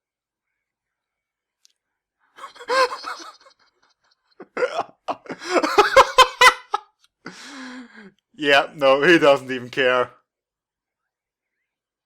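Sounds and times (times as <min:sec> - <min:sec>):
laughter in short bursts: 0:02.4 - 0:03.6, 0:04.4 - 0:06.8.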